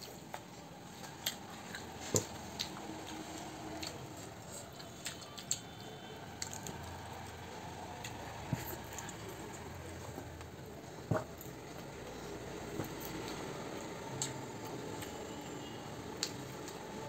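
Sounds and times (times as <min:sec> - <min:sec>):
wet chewing clicks and smacks: 0:00.0 - 0:06.9.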